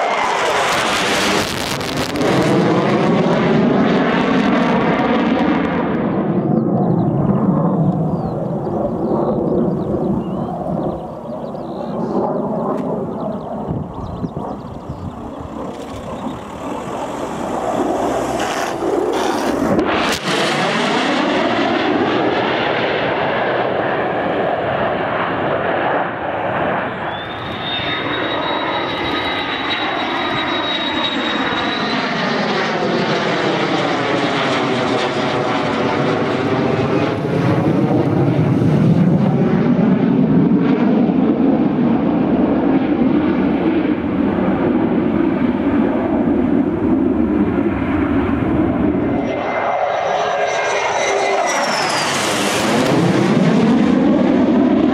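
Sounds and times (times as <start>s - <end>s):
military aircraft flying past: 0.0s - 54.9s
thin high whine: 26.9s - 32.2s.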